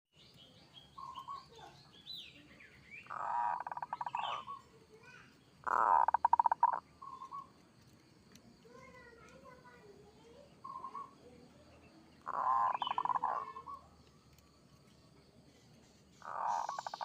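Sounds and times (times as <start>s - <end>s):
small birds chirping faintly: 0.1s - 17.0s
dove cooing with stuttering trill: 5.7s - 6.8s, 12.3s - 13.8s, 16.2s - 17.0s.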